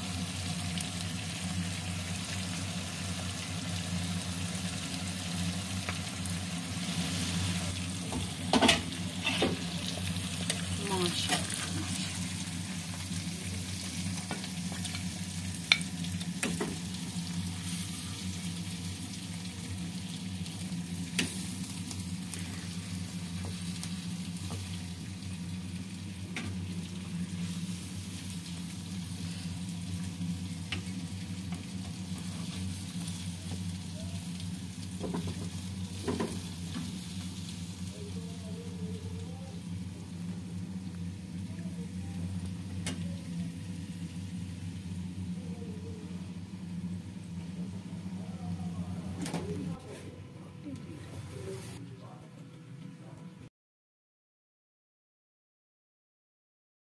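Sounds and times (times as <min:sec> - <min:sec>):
potato slices sizzling in oil: 0:00.0 - 0:45.5.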